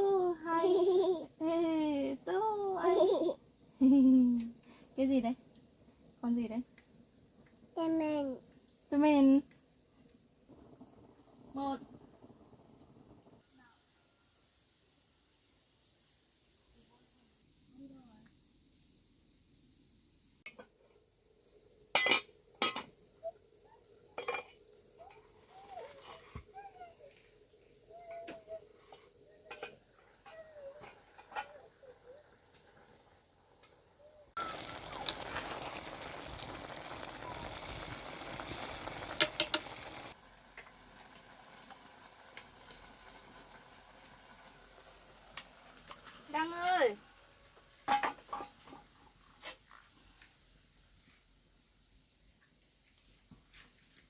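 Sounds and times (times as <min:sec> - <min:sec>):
crickets chirring: 0:00.0 - 0:54.0
hissing noise: 0:34.4 - 0:40.2.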